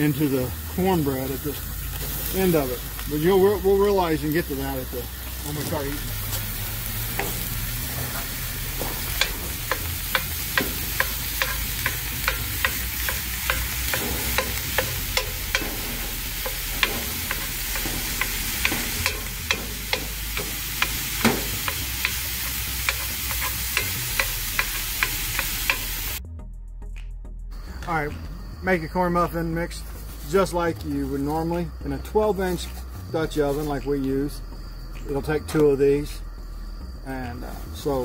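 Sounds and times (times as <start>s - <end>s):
meat sizzling in skillet: 0.0s - 26.2s
utensil scraping pan: 5.2s - 26.1s.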